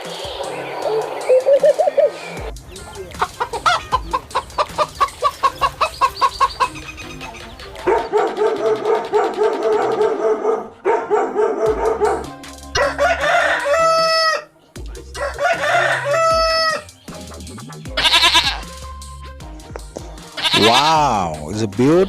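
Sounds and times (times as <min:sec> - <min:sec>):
chickens clucking: 0:00.0 - 0:10.3, 0:11.8 - 0:18.7
rooster crowing: 0:12.8 - 0:14.5, 0:15.2 - 0:16.9.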